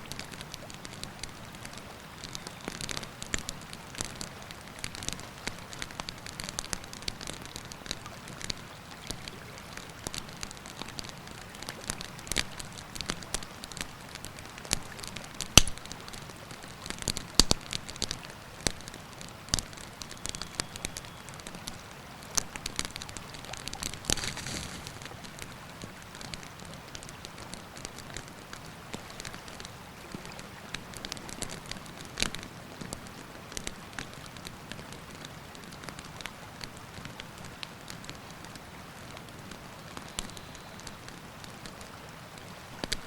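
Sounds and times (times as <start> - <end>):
campfire crackling and popping: 0.0 - 43.0.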